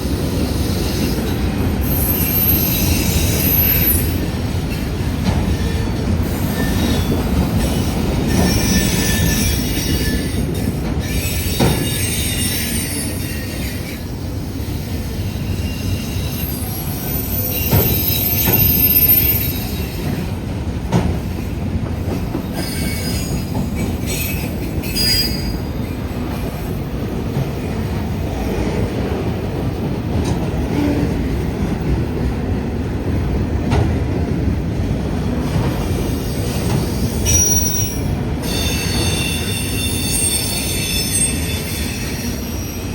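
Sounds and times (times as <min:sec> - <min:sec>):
train wheels rumbling on rail: 0:00.0 - 0:42.9
high-pitched wheel squeals: 0:01.8 - 0:04.2, 0:15.1 - 0:20.1, 0:22.5 - 0:26.0, 0:35.9 - 0:42.9.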